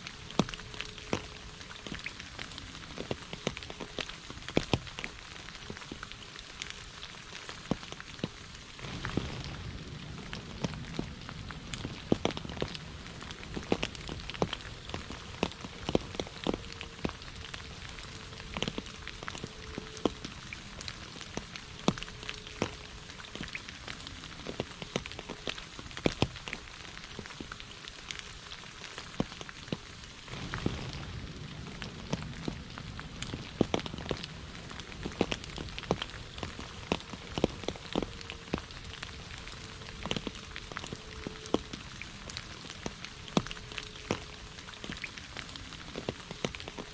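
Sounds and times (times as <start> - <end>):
heavy rain falling: 0.0 - 46.9
raindrops striking close by: 0.0 - 46.9.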